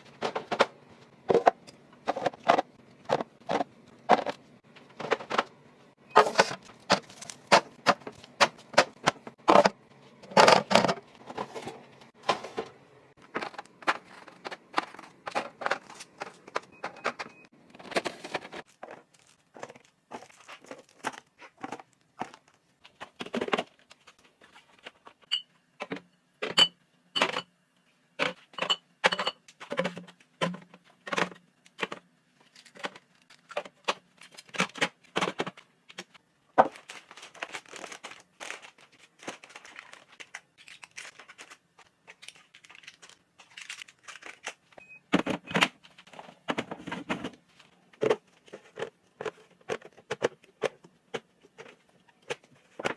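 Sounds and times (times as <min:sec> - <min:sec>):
household items clacking and knocking: 0:00.0 - 0:27.5, 0:45.1 - 0:52.9
packaging crinkling and rustling: 0:17.7 - 0:25.2, 0:31.7 - 0:44.8.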